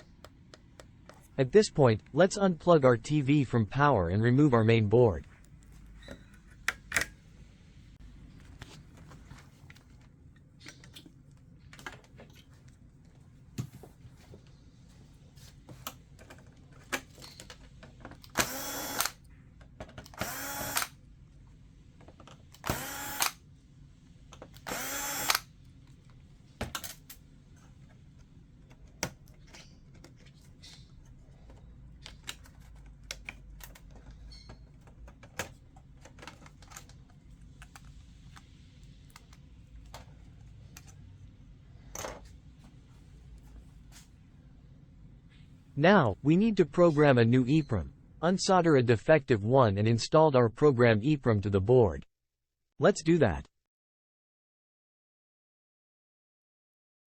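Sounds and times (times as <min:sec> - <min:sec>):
electric screwdriver running: 0:18.3 - 0:19.2, 0:20.2 - 0:21.0, 0:22.6 - 0:23.4, 0:24.6 - 0:25.5.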